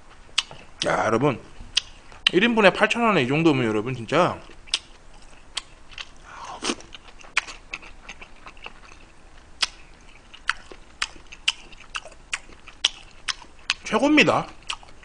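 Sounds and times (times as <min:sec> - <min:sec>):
mouth chewing food: 0:00.1 - 0:00.9, 0:01.7 - 0:02.4, 0:04.3 - 0:15.0.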